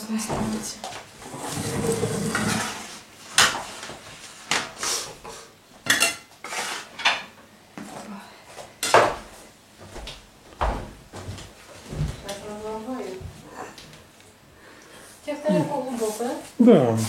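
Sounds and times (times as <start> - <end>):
plates and cutlery clattering: 5.8 - 7.4.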